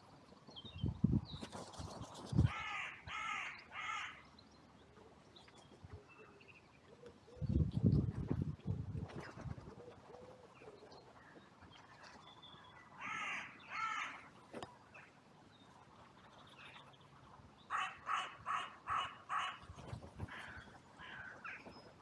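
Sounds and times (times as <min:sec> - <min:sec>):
crow cawing: 0:02.5 - 0:04.2, 0:13.0 - 0:14.2, 0:17.7 - 0:19.5.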